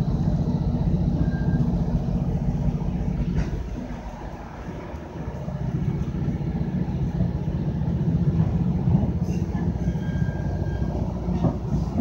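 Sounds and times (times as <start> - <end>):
train wheels rumbling on rail: 0.0 - 12.0
faint thin squeal: 9.2 - 11.5.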